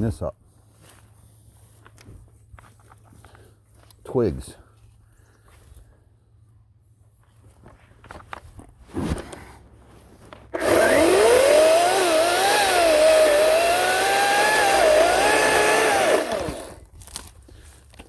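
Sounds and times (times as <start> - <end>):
chainsaw cutting wood: 10.5 - 17.3.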